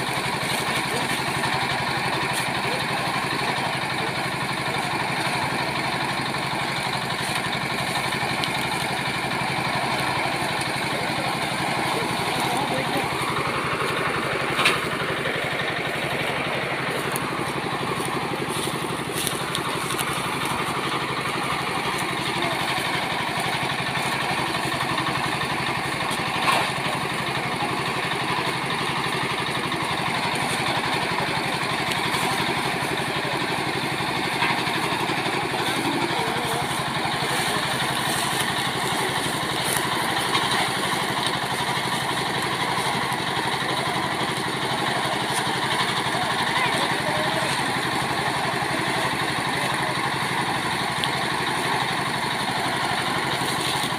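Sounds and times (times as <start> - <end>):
farm machine engine running: 0.0 - 53.9.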